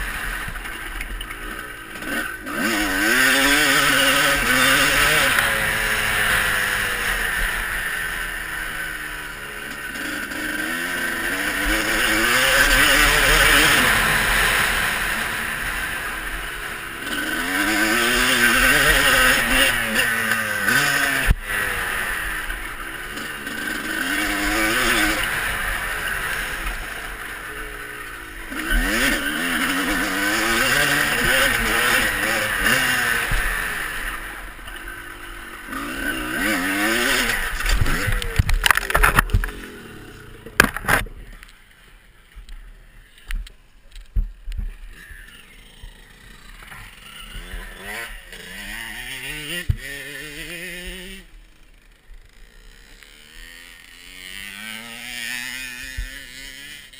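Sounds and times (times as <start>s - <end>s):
motocross bike engine revving: 0.0s - 43.2s, 44.0s - 56.9s.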